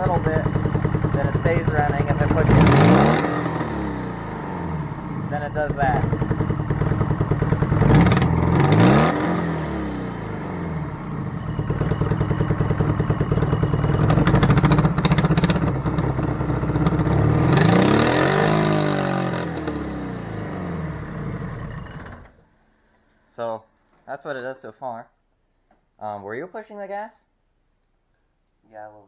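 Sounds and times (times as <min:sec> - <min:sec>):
car engine revving: 0:00.0 - 0:22.4.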